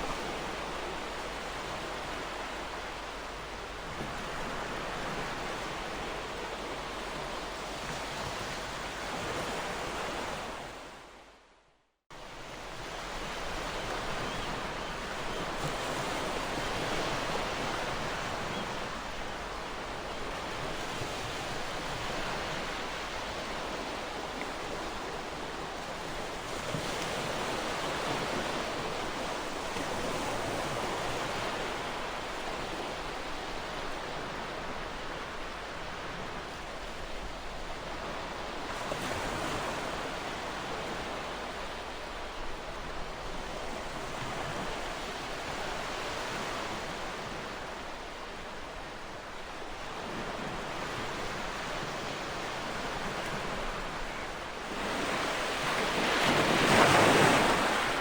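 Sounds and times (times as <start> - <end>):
ocean surf washing ashore: 49.4 - 58.0.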